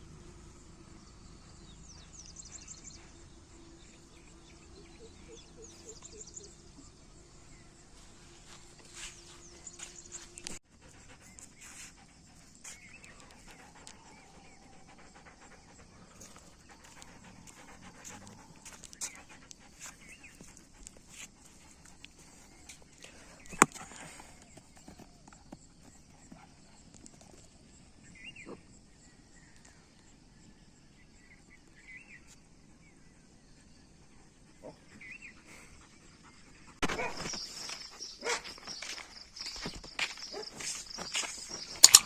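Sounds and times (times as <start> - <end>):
dog panting: 9.4 - 24.6, 34.9 - 39.0.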